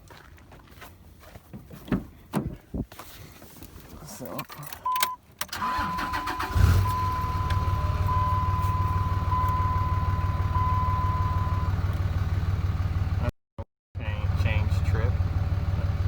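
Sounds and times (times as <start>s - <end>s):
diesel engine starting and idling: 5.5s - 13.3s, 14.0s - 16.0s
electronic chime beeping: 5.6s - 11.7s.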